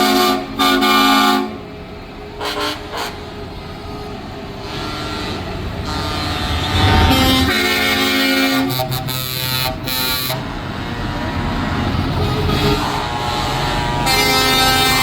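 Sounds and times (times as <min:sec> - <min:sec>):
truck air horn: 0:00.0 - 0:01.6, 0:02.4 - 0:15.0
low rumble: 0:05.6 - 0:08.4.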